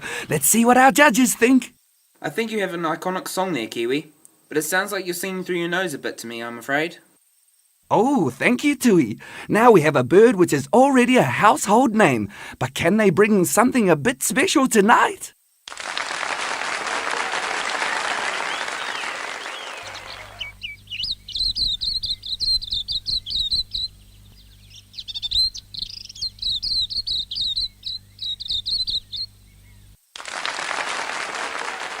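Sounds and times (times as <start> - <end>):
applause: 15.7 - 20.5, 30.2 - 32.0
songbird twittering: 18.4 - 30.0.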